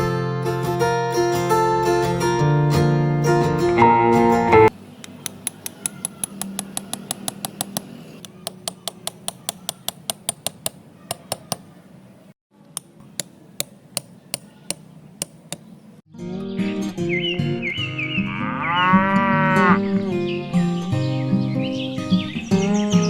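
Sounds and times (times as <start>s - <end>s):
sharp light taps: 5.0s - 11.7s, 12.8s - 15.8s.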